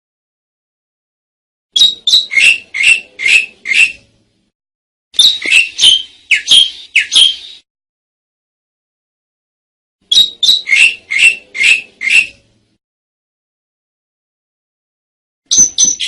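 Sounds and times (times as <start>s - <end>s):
starling chattering calls: 1.8s - 4.0s, 5.2s - 7.6s, 10.1s - 12.4s.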